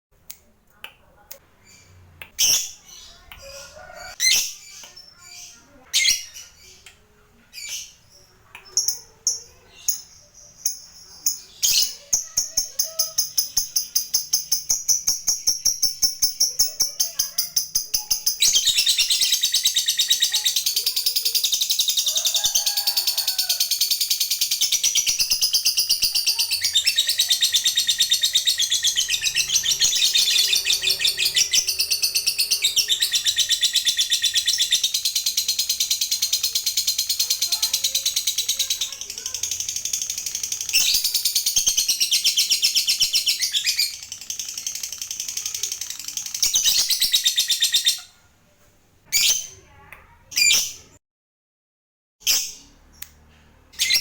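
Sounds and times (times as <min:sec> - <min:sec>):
bird chirping: 0:01.4 - 0:48.2, 0:52.3 - 0:54.0
bird chattering trill: 0:08.6 - 0:48.1.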